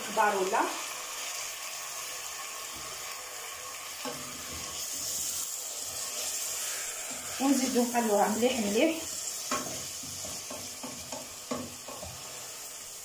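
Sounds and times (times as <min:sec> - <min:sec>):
chicken sizzling in oil: 0:00.0 - 0:13.0
spoon knocking against pot: 0:09.5 - 0:12.1.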